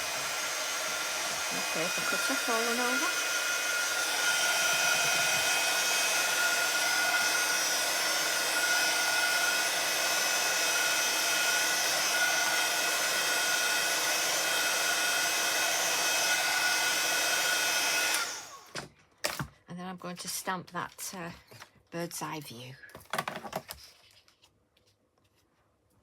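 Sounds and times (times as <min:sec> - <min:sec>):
hot-air dryer whining: 0:00.0 - 0:18.9.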